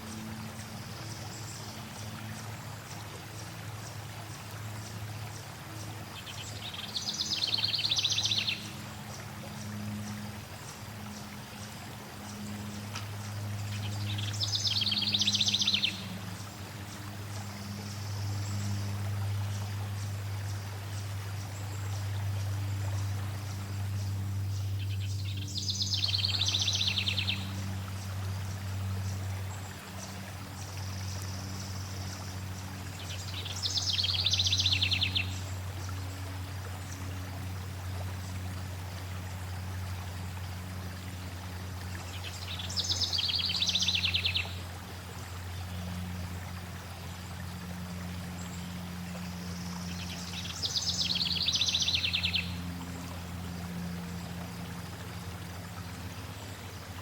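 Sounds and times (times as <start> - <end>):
flowing stream water: 0.0 - 57.0
songbird trilling: 13.9 - 16.1, 42.3 - 44.5, 50.0 - 52.6.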